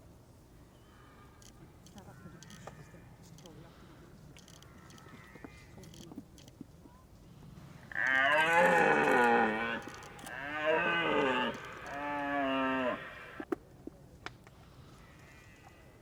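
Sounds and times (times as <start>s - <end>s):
deer stag roaring: 7.9s - 13.4s.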